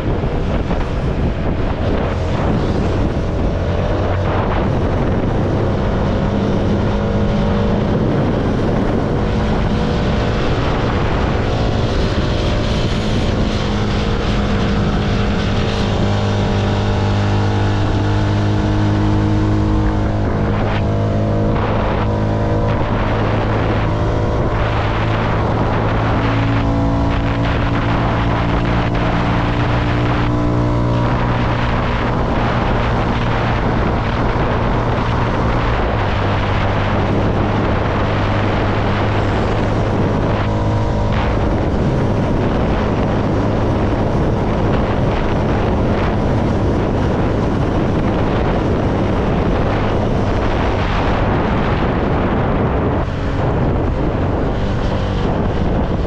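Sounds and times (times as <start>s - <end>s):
motorcycle engine cruising: 0.0s - 56.0s
wind on microphone: 0.0s - 56.0s.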